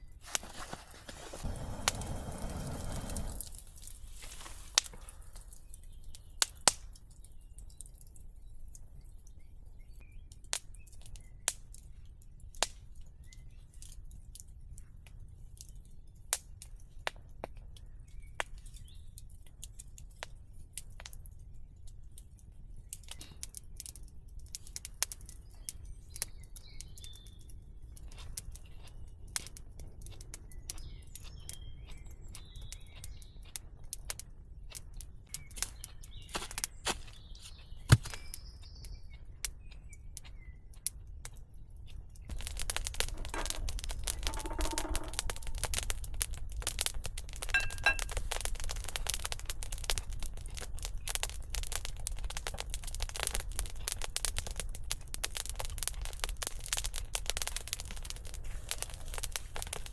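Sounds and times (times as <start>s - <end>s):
faint birds chirping: 0.0s - 16.3s, 24.6s - 52.3s
wood fire crackling and popping: 0.0s - 59.9s.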